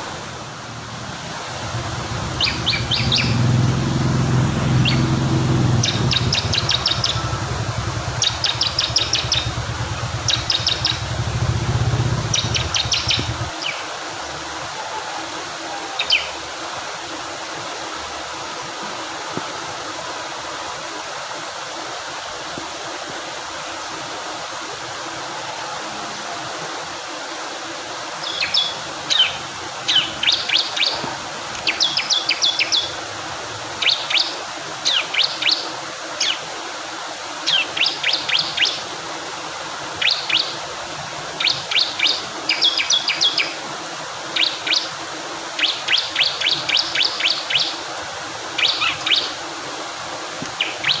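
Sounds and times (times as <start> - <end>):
flowing water: 0.0 - 51.0
low rumble: 0.8 - 13.5
bird singing trilled notes: 1.7 - 13.5.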